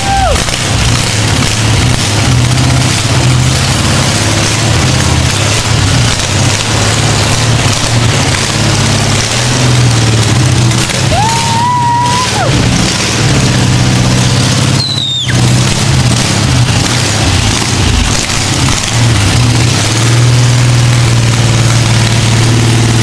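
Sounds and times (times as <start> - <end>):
car engine running loud: 0.0 - 23.0
brief whistling tones: 14.8 - 15.4.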